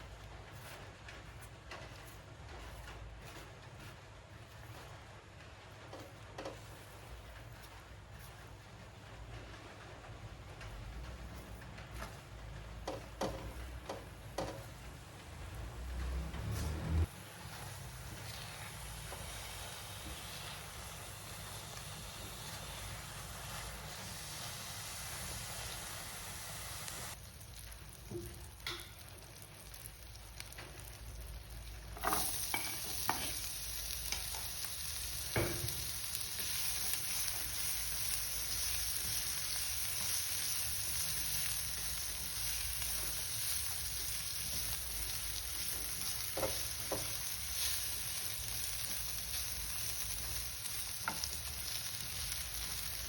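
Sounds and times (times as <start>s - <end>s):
utensil knocking against pan: 12.8s - 14.6s
food sizzling in a pan: 12.9s - 53.0s.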